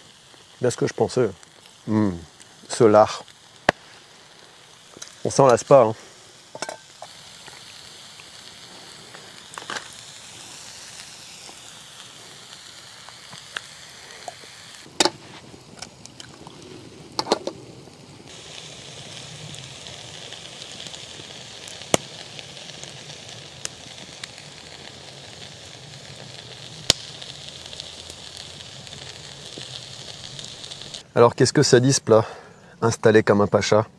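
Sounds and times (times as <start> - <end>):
food sizzling in a frying pan: 0.0 - 31.1
sharp pops: 1.4 - 4.0, 21.7 - 22.9, 26.8 - 31.0.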